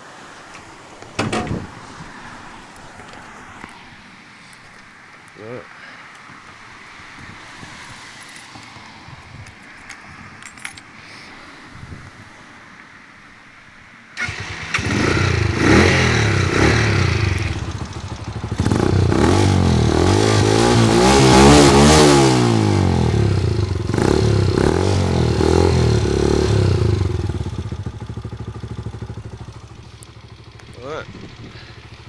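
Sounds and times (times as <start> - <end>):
motorcycle engine revving: 14.2 - 32.0.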